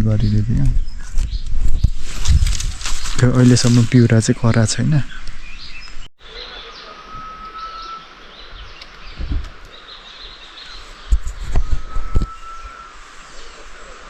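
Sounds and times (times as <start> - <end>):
faint bird calls: 6.2 - 14.0
thin level whistle: 6.3 - 8.1, 11.7 - 13.0
low thumps: 9.1 - 9.6.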